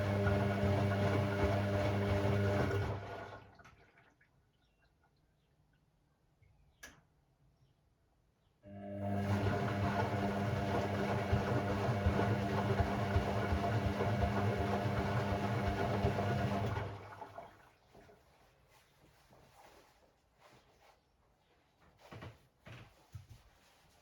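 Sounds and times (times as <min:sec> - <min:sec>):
drain pump humming: 0:00.0 - 0:03.8, 0:08.7 - 0:17.8.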